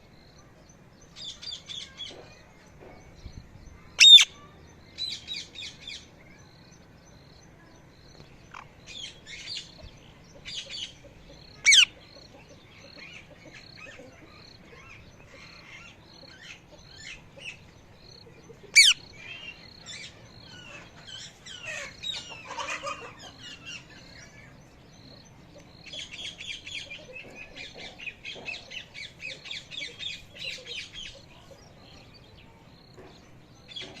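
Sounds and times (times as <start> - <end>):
parrot chattering: 18.8 - 19.0.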